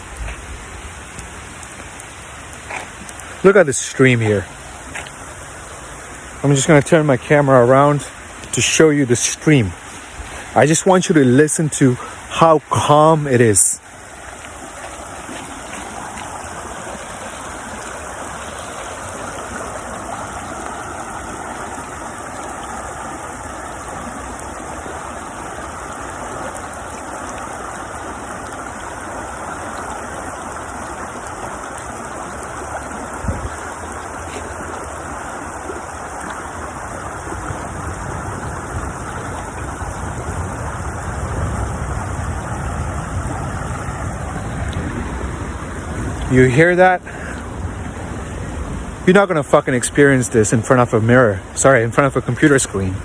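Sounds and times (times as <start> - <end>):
stream flowing: 0.0 - 53.0.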